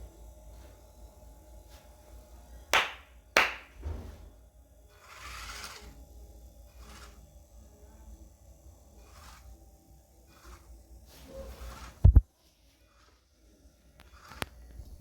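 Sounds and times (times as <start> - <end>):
sharp knocks: 2.8 - 4.3.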